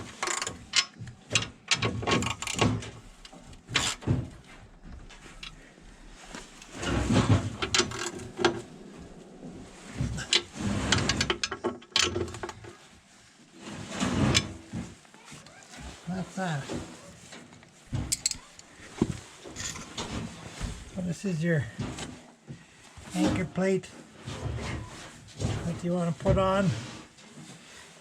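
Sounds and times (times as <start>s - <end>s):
hand tools and bolts clanking: 17.4s - 20.3s.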